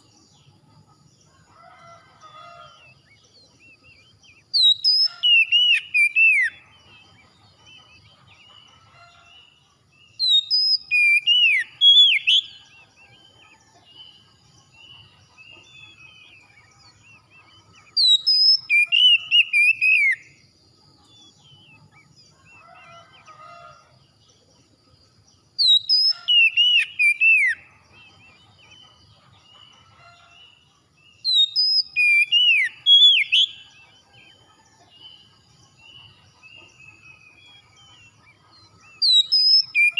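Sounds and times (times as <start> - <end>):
faint bird chirps: 0.0 - 39.9
insects: 0.0 - 39.9
bird singing whistled phrases: 4.5 - 6.6, 10.2 - 12.5, 18.0 - 20.3, 25.6 - 27.6, 31.3 - 33.6, 38.9 - 39.9.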